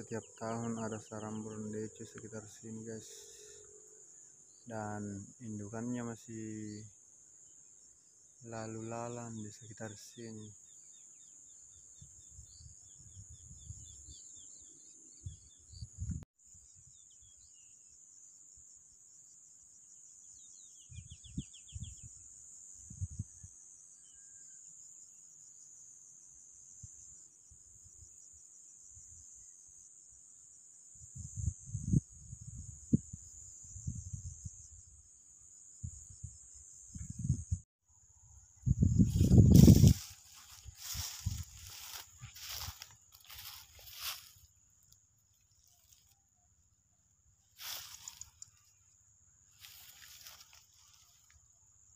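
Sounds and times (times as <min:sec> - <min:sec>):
crickets chirping: 0:00.0 - 0:51.9
low thumps and rustles: 0:39.0 - 0:41.6.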